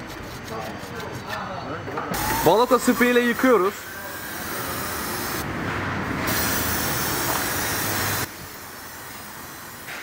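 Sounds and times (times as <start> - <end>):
aerosol can spraying hiss: 6.3 - 9.9.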